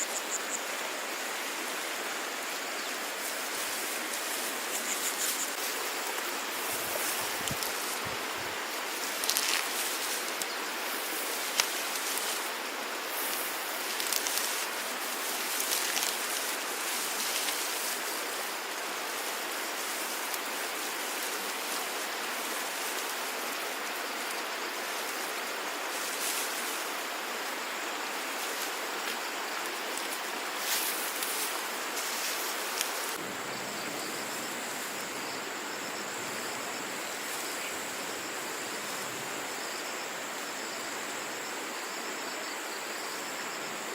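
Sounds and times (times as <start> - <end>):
flowing water rushing: 0.0 - 38.8.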